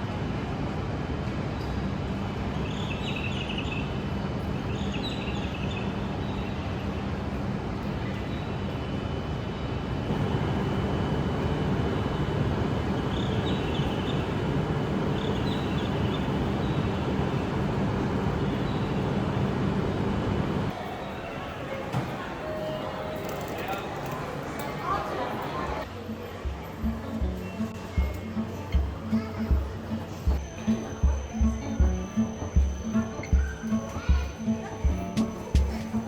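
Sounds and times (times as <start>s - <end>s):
train rumbling: 9.8s - 24.6s, 25.3s - 36.0s.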